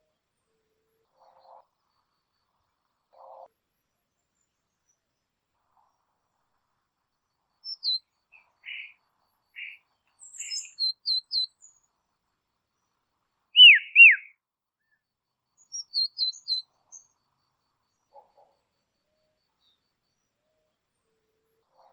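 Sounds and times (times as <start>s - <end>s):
bird chirping: 7.6s - 9.0s, 9.6s - 11.9s, 13.6s - 14.3s, 15.6s - 17.2s
down-slurred bird whistles: 7.7s - 8.0s, 10.4s - 11.5s, 13.6s - 14.3s, 15.7s - 16.6s
raspy bird notes: 13.6s - 14.3s.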